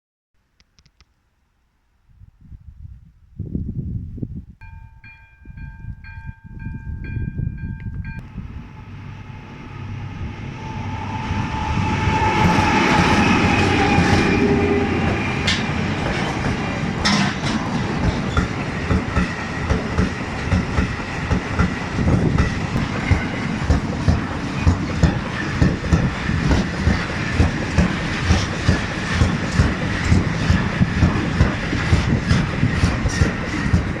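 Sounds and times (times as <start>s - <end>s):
bell-like tones: 4.6s - 12.7s
diesel locomotives passing: 6.0s - 34.0s
wagon wheels clacking on rail joints: 15.0s - 34.0s.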